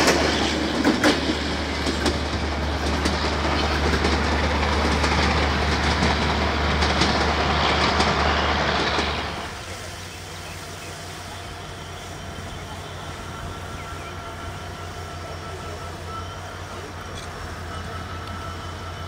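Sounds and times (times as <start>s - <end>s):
train wheels clattering: 0.0s - 9.5s
train rumbling: 0.0s - 19.0s.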